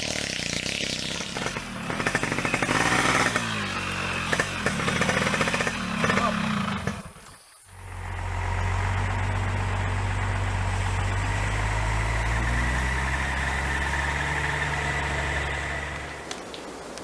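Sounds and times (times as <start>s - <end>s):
engine idling: 0.0s - 16.2s.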